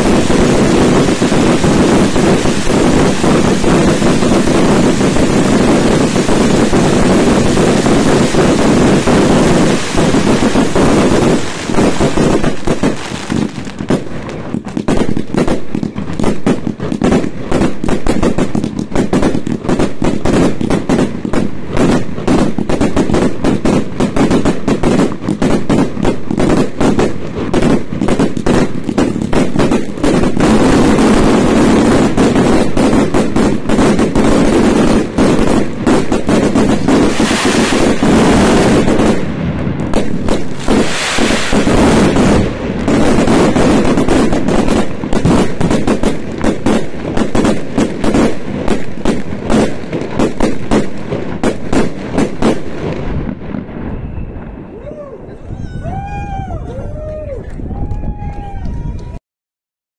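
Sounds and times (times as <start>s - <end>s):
fireworks bangs and crackles: 0.0s - 59.2s
hissing crackle: 27.8s - 46.6s.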